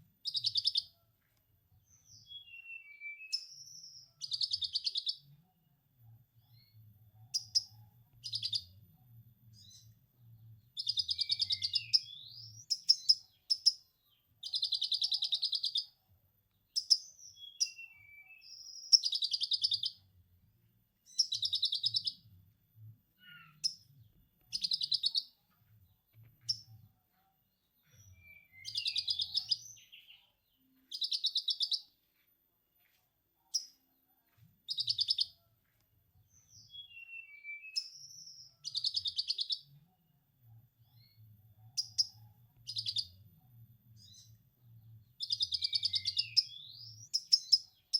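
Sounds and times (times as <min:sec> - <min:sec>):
faint low hum: 0:05.3 - 0:14.6, 0:20.0 - 0:31.0.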